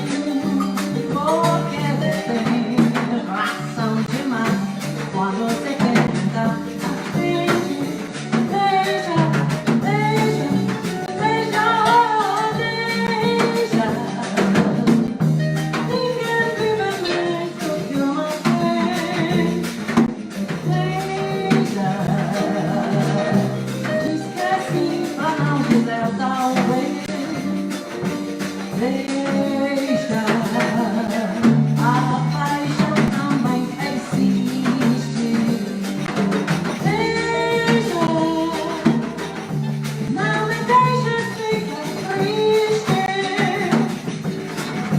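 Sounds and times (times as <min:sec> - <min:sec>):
person singing melody: 0:00.0 - 0:04.6
light percussion beat: 0:00.0 - 0:44.9.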